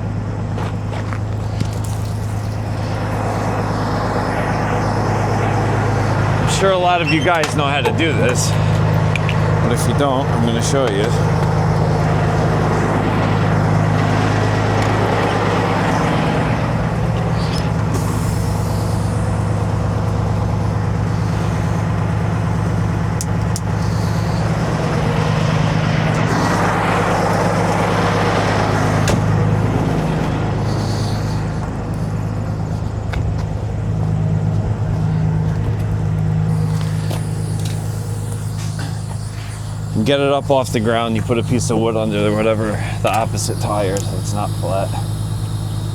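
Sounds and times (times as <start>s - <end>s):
broad rushing noise: 0.0s - 45.9s
truck diesel engine idling: 0.0s - 45.9s.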